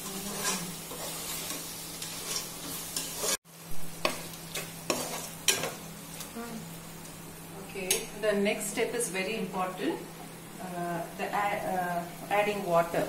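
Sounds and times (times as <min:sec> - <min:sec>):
spoon scraping a pan: 0:00.0 - 0:03.4, 0:04.0 - 0:05.8
onions sizzling in a pan: 0:00.0 - 0:13.0.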